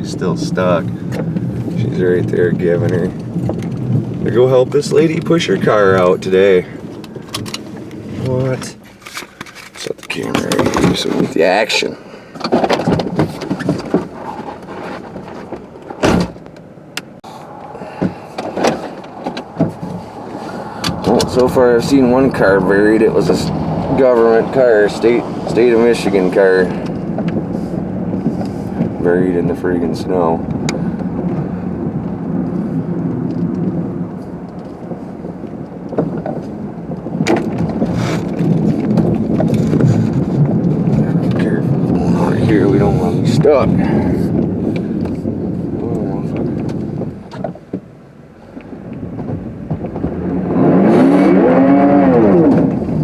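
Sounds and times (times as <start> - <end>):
car engine and road hum: 0.0 - 53.0
car door thud: 16.0 - 16.4.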